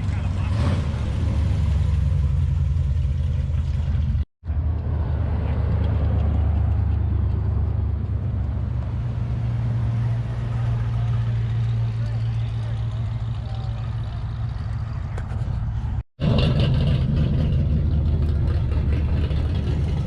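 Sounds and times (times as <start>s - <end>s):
car engine deep rumble: 0.0s - 20.0s.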